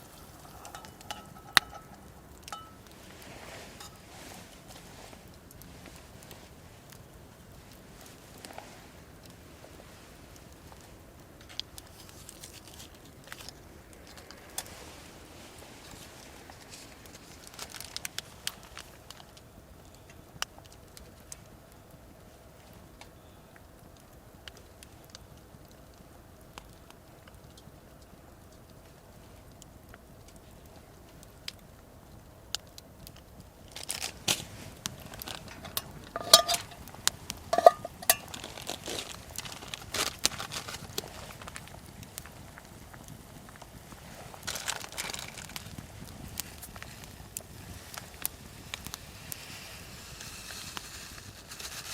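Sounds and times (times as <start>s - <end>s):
rustling: 0.0s - 19.4s, 33.6s - 51.9s
campfire crackling: 0.0s - 51.9s.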